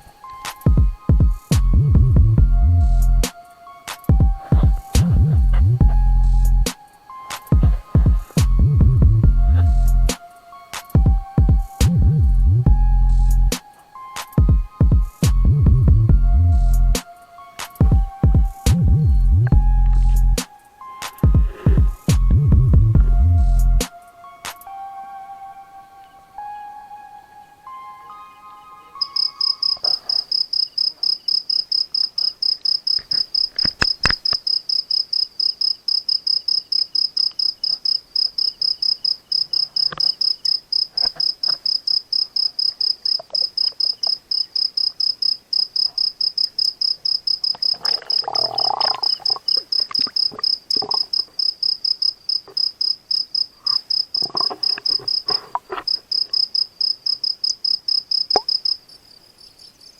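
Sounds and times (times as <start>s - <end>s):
cricket chirping: 0.0s - 15.7s, 28.8s - 59.9s
sharp clicks: 32.6s - 34.5s
rustling: 53.5s - 56.4s.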